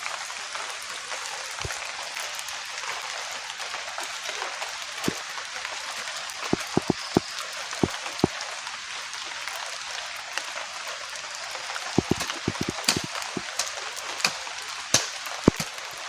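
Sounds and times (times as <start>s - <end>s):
steady rain falling: 0.0s - 16.0s
loud drips landing close: 6.5s - 7.2s, 12.0s - 13.6s, 15.5s - 15.8s.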